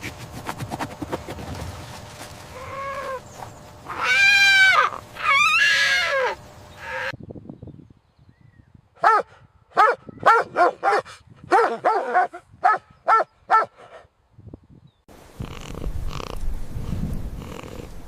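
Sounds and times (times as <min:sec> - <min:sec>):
dog barking: 0:09.0 - 0:14.0.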